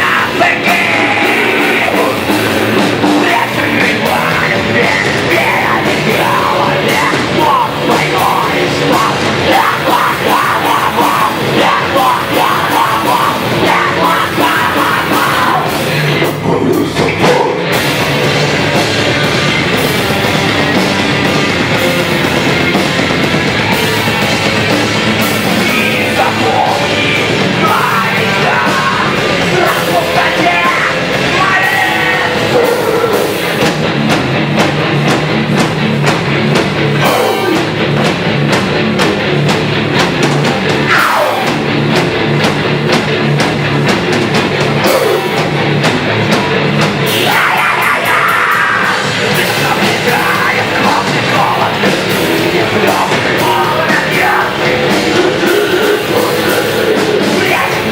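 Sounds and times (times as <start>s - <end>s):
person singing or shouting: 0.0s - 17.9s, 25.4s - 33.6s, 37.0s - 37.8s, 40.8s - 41.7s, 44.8s - 45.5s, 47.0s - 57.9s
distorted guitars: 0.0s - 57.9s
drum kit: 0.0s - 57.9s
heavy rock music: 0.0s - 57.9s.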